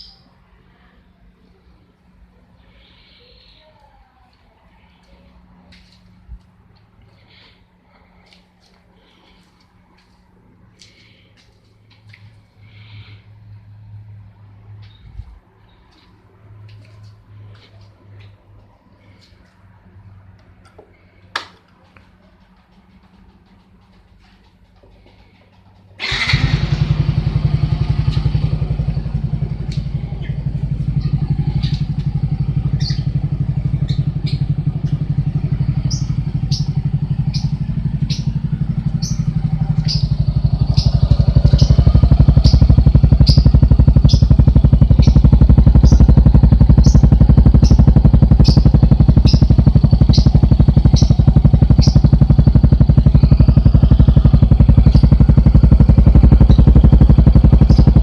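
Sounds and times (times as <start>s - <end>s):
scooter engine running: 22.4s - 58.0s
sharp ticks: 27.8s - 58.0s.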